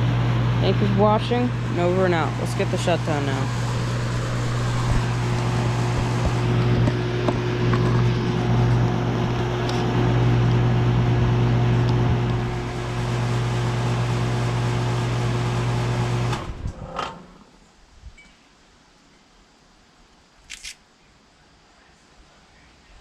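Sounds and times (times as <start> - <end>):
compressor hum: 0.0 - 17.5
condenser fan noise: 0.0 - 17.6.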